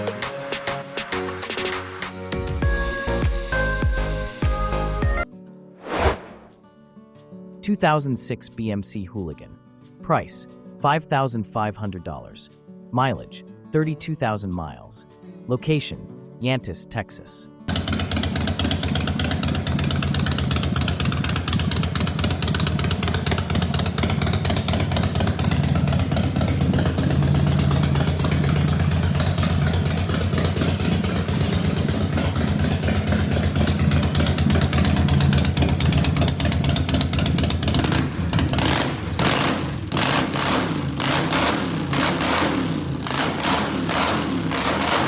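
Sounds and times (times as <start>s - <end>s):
motorcycle engine idling: 17.7s - 45.0s.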